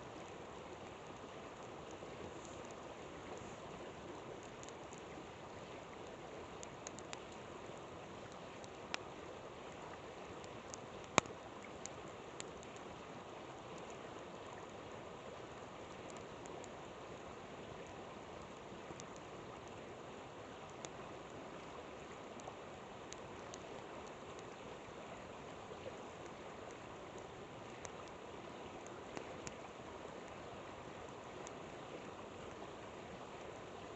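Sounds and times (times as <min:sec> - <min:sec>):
river water flowing: 0:00.0 - 0:33.9
campfire crackling and popping: 0:00.1 - 0:14.1, 0:15.9 - 0:16.9, 0:18.3 - 0:19.9, 0:20.5 - 0:24.7, 0:26.2 - 0:30.4, 0:31.2 - 0:31.6.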